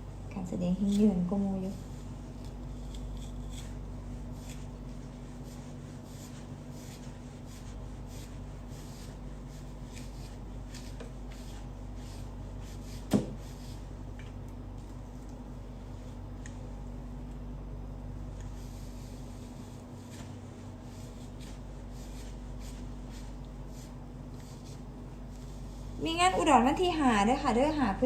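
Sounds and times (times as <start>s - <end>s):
low electrical hum: 0.0s - 28.0s
towel rubbing hair: 0.8s - 13.9s, 18.4s - 26.4s.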